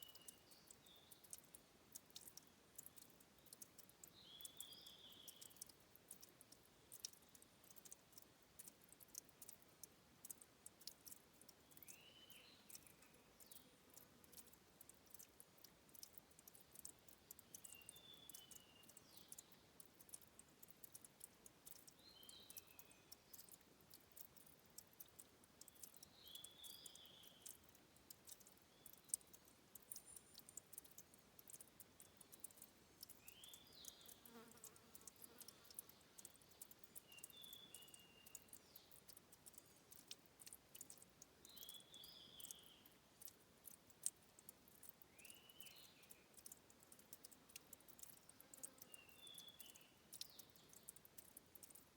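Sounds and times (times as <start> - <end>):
water dripping and trickling: 0.0 - 51.9
small animal chirping: 32.3 - 40.1.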